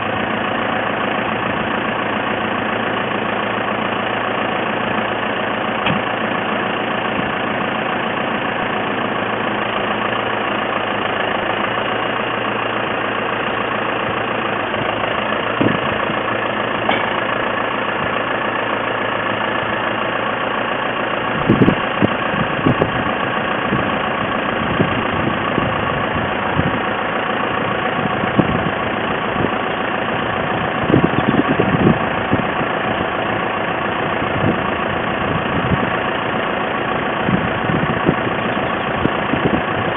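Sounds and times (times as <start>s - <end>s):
tractor engine idling: 0.0s - 39.9s
short clunks and knocks: 5.8s - 6.1s, 16.8s - 17.2s.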